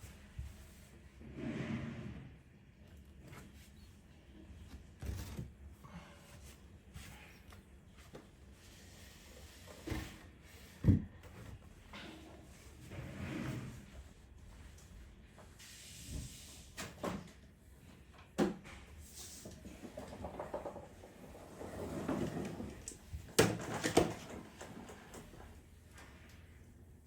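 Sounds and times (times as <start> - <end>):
objects knocking and clattering: 19.7 - 21.4.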